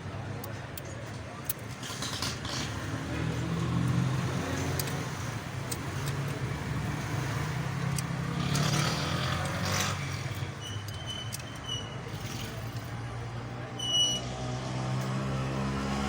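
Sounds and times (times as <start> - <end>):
car engine misfiring: 1.4 - 14.1.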